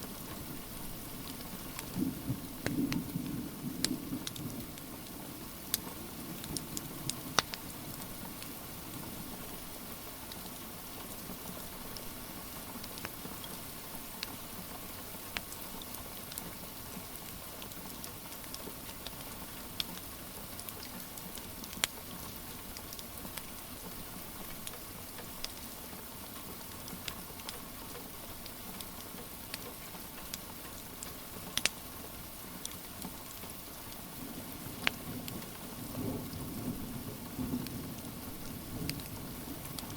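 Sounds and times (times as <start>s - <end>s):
steady rain hiss: 0.0s - 39.9s
wood fire crackling: 6.4s - 8.5s.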